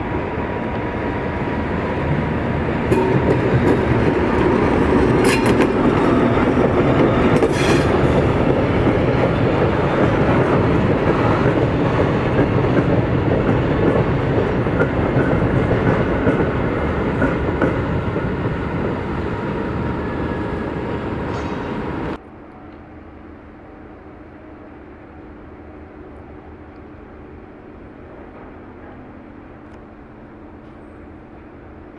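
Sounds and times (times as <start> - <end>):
train wheels clattering over rails: 2.8 - 18.5.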